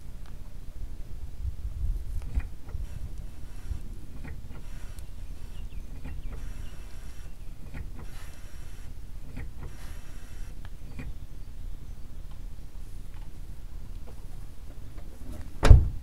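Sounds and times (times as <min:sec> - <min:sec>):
squeaky brake pedal pumping: 0:02.3 - 0:11.3.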